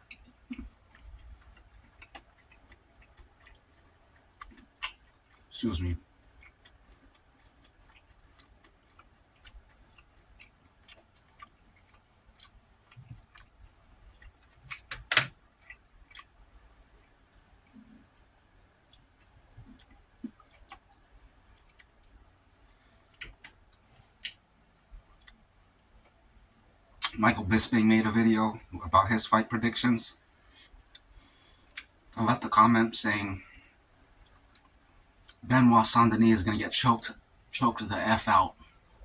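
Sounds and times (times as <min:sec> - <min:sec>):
person chewing food: 0:00.0 - 0:27.1, 0:30.3 - 0:32.1.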